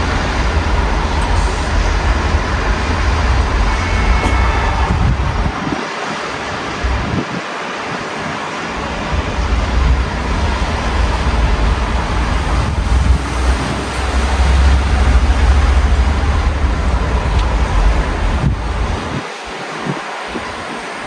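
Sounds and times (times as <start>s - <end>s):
deep rumble: 0.0s - 5.8s, 9.1s - 19.2s
rain through open window: 0.0s - 21.0s.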